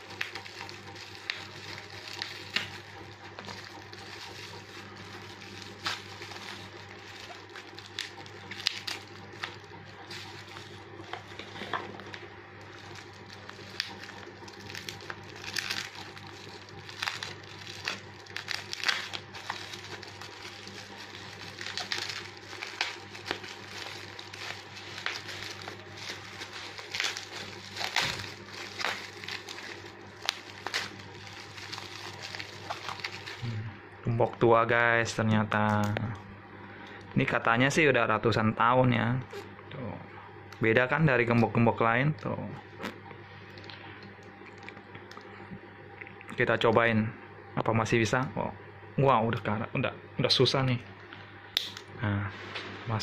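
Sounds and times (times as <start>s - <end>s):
packaging wrap crinkling: 0.0s - 33.7s
steady low hum: 0.0s - 53.0s.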